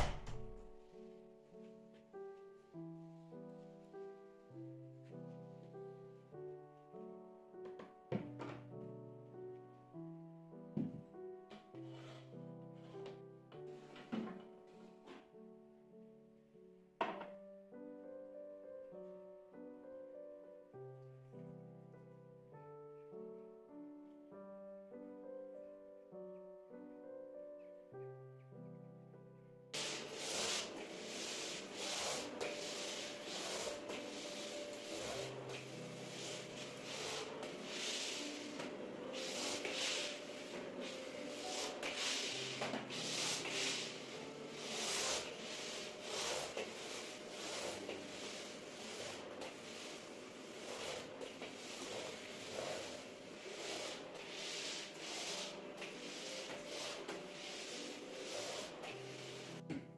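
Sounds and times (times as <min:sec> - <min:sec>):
soft piano music: 0:00.0 - 0:59.9
object rubbed across a surface: 0:11.8 - 0:13.2, 0:29.8 - 0:59.6.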